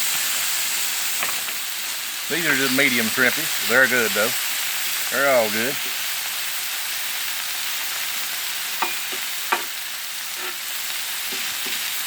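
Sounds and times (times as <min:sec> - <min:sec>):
meat sizzling on a griddle: 0:00.0 - 0:12.0.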